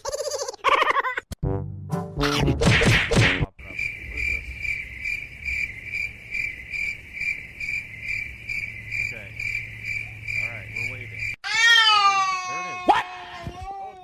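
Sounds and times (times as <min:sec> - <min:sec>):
cricket chirping: 0:03.6 - 0:11.4.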